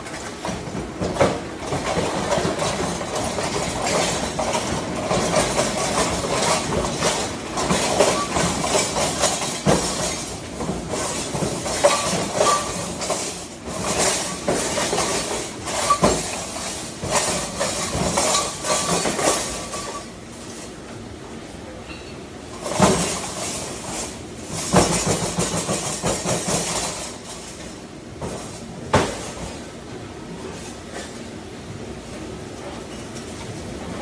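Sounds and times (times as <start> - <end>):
dishes and pans clattering: 11.0 - 20.1.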